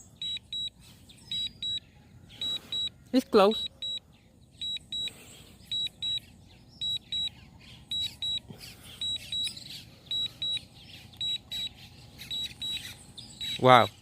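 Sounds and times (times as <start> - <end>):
high electronic double beeps: 2.4 - 2.9, 4.6 - 5.1, 5.7 - 8.4, 9.0 - 13.9.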